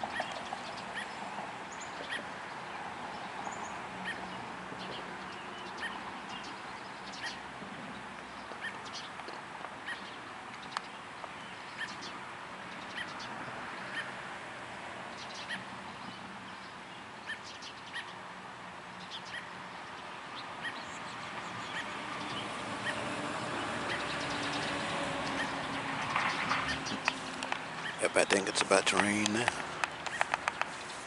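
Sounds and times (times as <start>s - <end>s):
songbird chirping: 0.0s - 14.1s, 19.0s - 31.0s.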